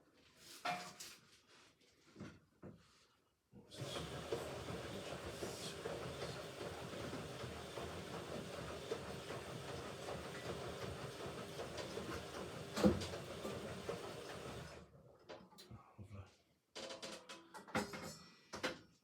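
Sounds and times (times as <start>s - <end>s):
washing machine drum rumbling: 3.8s - 14.7s
washing machine knock: 3.8s - 14.7s.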